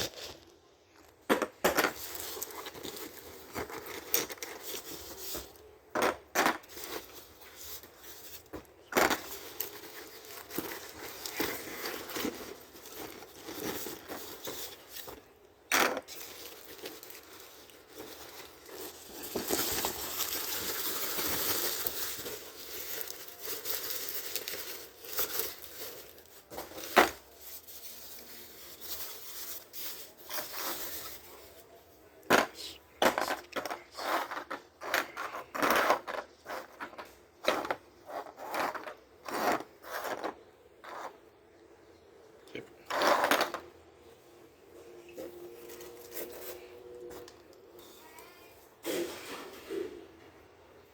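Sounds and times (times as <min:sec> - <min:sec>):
packaging tearing and rustling: 0:01.9 - 0:05.6, 0:06.6 - 0:31.4.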